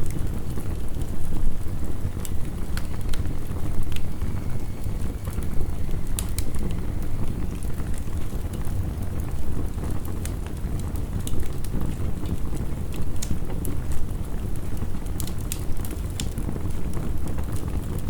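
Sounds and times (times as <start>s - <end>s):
wood fire crackling: 0.0s - 18.0s
heavy rain: 0.1s - 12.3s.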